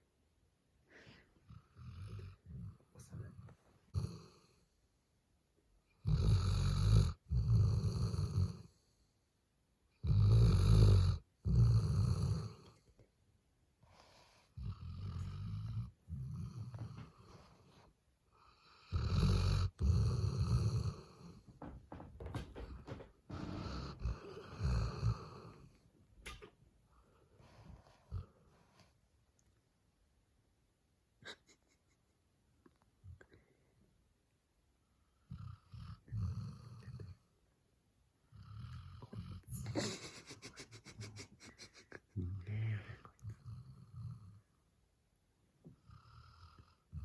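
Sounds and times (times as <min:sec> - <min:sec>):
puppy snoring: 0:01.4 - 0:04.6, 0:06.0 - 0:08.9, 0:10.0 - 0:12.9, 0:13.9 - 0:17.8, 0:18.4 - 0:22.0, 0:22.6 - 0:26.5, 0:35.2 - 0:37.2, 0:38.3 - 0:41.8, 0:42.4 - 0:44.4, 0:45.8 - 0:47.0.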